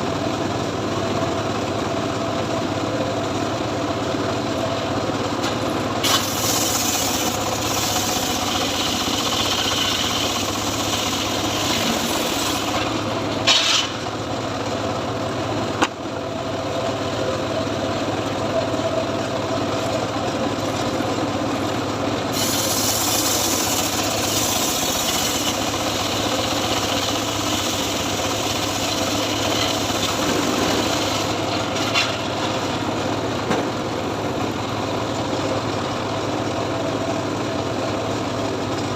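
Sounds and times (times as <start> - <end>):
sawmill engine running: 0.0 - 38.9
saw blade rasping through wood: 6.0 - 13.9, 22.3 - 31.7.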